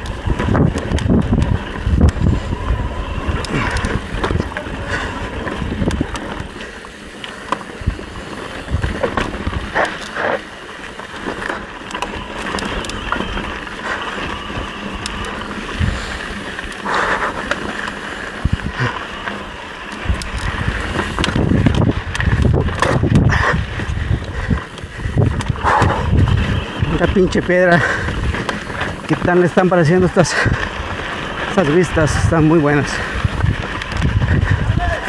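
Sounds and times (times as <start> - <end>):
bike clicks and rattles: 0.0 - 35.0
bike tyres on rock: 0.0 - 35.0
heavy low rumbling: 20.0 - 29.2.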